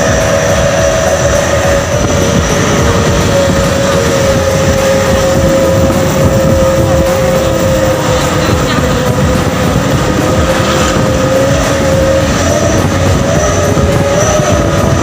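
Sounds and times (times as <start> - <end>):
truck engine through loud exhaust: 0.0 - 15.0.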